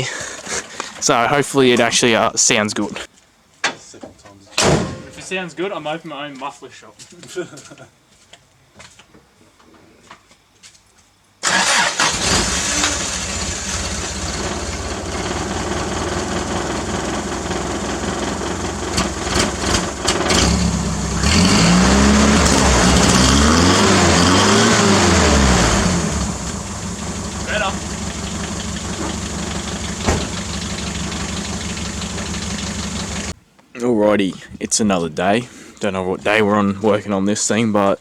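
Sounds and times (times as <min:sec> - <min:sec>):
petrol engine starting and revving: 0:11.4 - 0:33.4.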